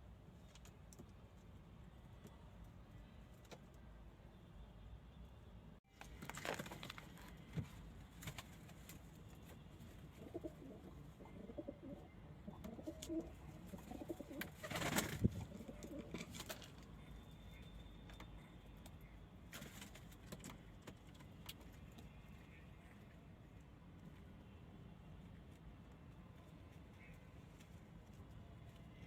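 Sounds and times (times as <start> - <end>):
rustling: 6.0 - 10.4
pigeons cooing: 10.1 - 16.4.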